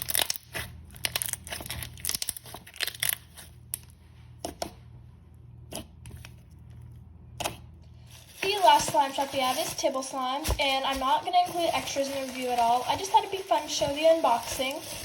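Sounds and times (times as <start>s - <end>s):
packaging being torn and crinkled: 0.0s - 3.9s, 8.0s - 15.0s.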